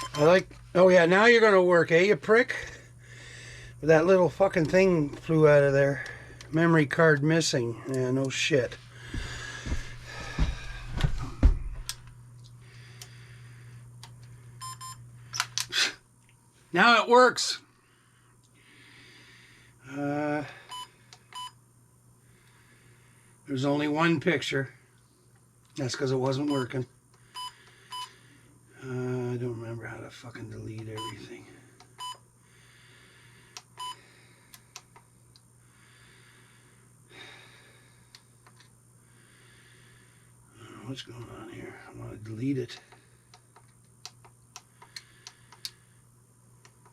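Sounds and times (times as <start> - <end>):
electronic beeps: 0.0 - 0.3.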